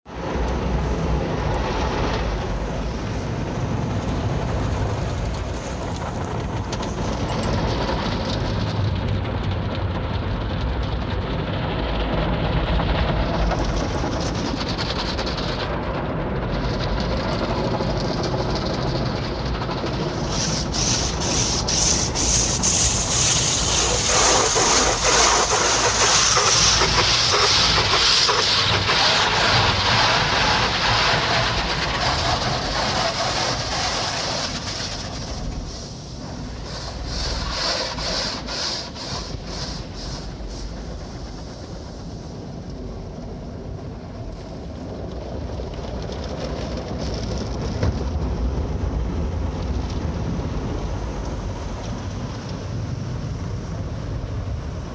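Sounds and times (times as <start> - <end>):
car wash spray hissing: 19.8 - 42.6
brushes rubbing and slapping: 20.1 - 35.2, 36.6 - 40.7.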